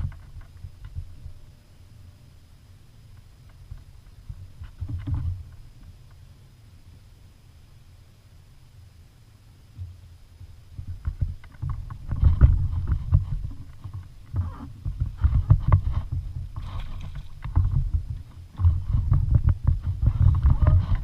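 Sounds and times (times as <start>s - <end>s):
knocks and clatters on kayak: 0.0s - 1.1s, 3.5s - 5.9s, 10.7s - 21.0s
low rumbling: 9.7s - 21.0s.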